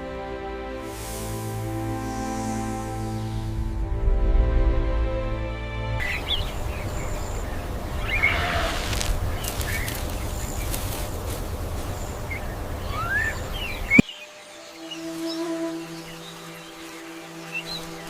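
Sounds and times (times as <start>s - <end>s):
bird chirps and whistles: 12.9s - 14.1s.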